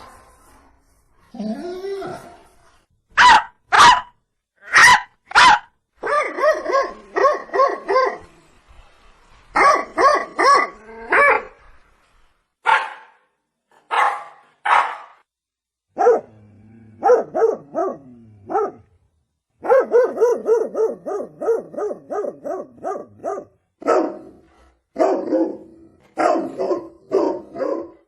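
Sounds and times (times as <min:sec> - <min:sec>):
dog barking: 0:03.2 - 0:08.2, 0:09.6 - 0:11.5, 0:12.6 - 0:13.3, 0:13.9 - 0:15.2, 0:16.0 - 0:16.3, 0:17.0 - 0:18.9, 0:19.6 - 0:24.4, 0:25.0 - 0:28.0.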